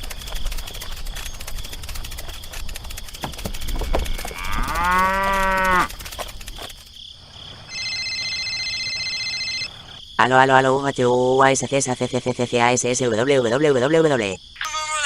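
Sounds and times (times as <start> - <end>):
crackling background: 0.0 - 14.4
cow mooing: 3.6 - 5.9.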